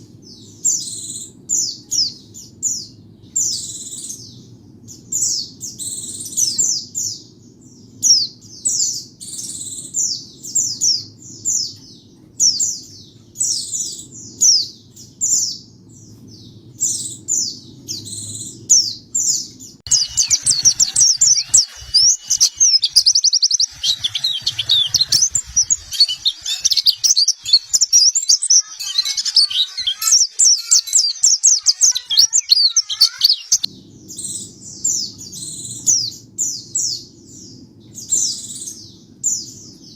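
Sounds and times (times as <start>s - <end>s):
birds singing high chirps: 0.0s - 39.9s
rapid bird twittering: 19.9s - 33.7s.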